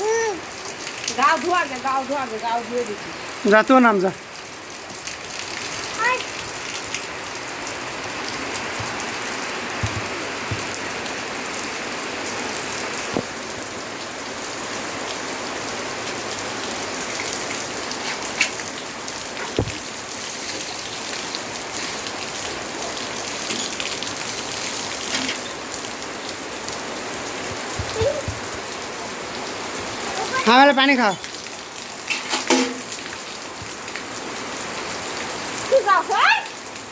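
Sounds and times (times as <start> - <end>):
rain pattering: 0.0 - 36.9
sharp knocks: 32.1 - 32.9.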